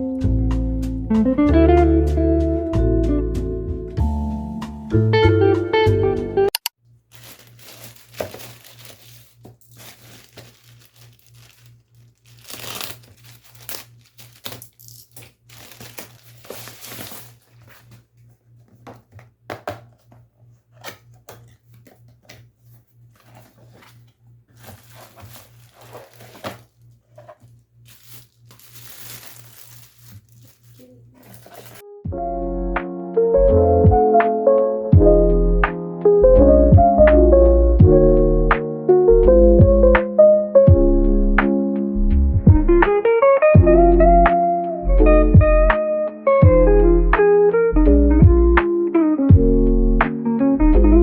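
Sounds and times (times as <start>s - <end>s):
paper rustling and crinkling: 7.1s - 31.8s.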